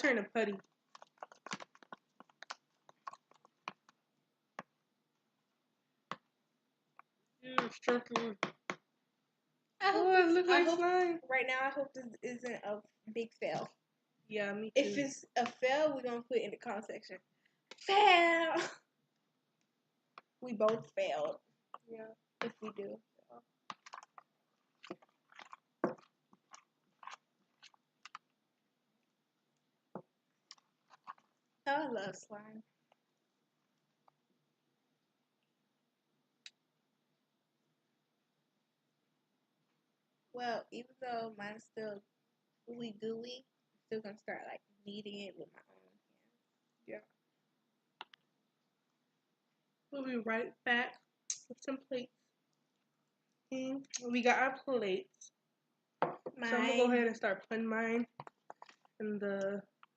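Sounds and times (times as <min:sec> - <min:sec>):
slime clicking and squishing: 0:00.4 - 0:04.0, 0:23.6 - 0:28.4.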